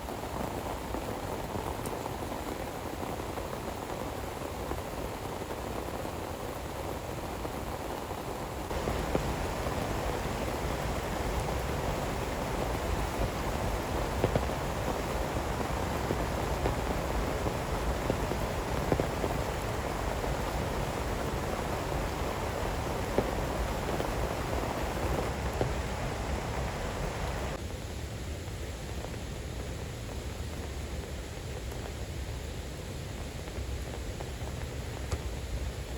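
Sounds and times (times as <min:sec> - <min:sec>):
heavy rain: 0:00.0 - 0:27.6
sharp raindrop hits: 0:08.7 - 0:27.6.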